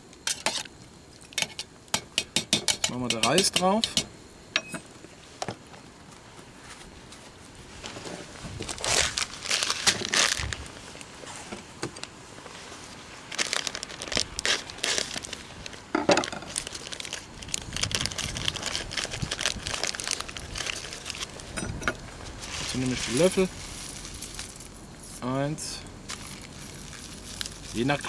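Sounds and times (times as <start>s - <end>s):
plastic packaging crinkling: 8.6s - 10.8s, 13.2s - 21.6s, 26.1s - 28.0s.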